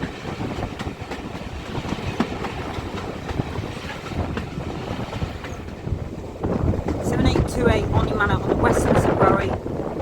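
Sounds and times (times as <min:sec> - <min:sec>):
wheels clicking over rail joints: 0:00.0 - 0:07.5
railway carriage rumble: 0:00.0 - 0:10.0.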